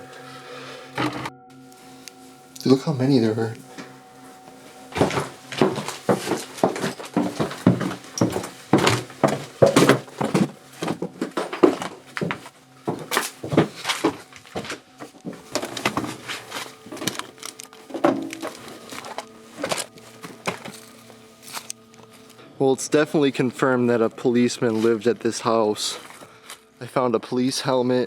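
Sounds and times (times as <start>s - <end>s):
rustling: 3.6s - 22.4s
knocks and clatters: 4.9s - 20.8s.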